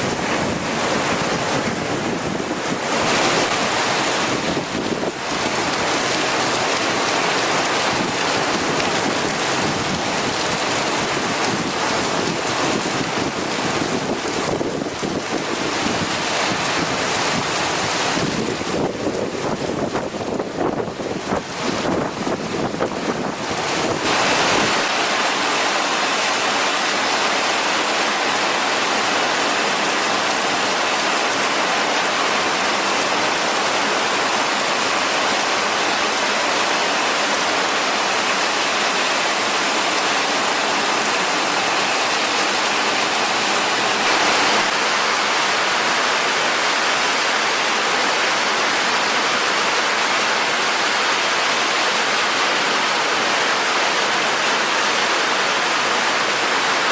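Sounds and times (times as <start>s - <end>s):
heavy rain pouring: 0.0s - 56.9s
wind buffeting microphone: 7.9s - 24.8s.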